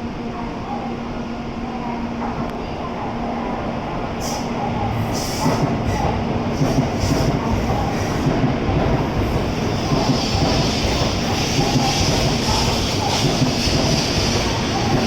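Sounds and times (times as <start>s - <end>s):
train wheels rumbling on track: 3.9s - 15.0s.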